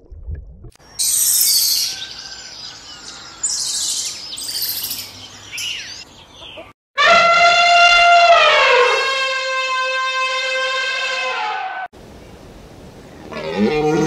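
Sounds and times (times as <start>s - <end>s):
small birds chirping: 0.8s - 6.8s
elephant trumpeting: 7.0s - 11.8s.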